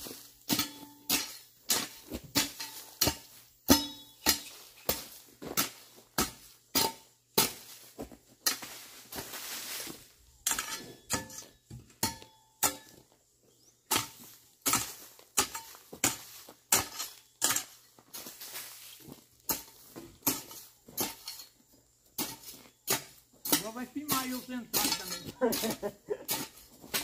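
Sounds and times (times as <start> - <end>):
hoe chopping into soil: 0.0 - 13.0, 13.9 - 18.9, 19.5 - 21.6, 22.2 - 27.0
scraping rustles: 7.8 - 11.5.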